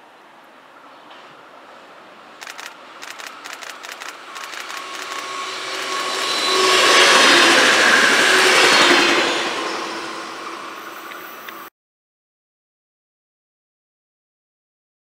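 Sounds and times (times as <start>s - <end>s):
train passing on rails: 0.1s - 11.7s
sharp clicks: 2.4s - 6.3s.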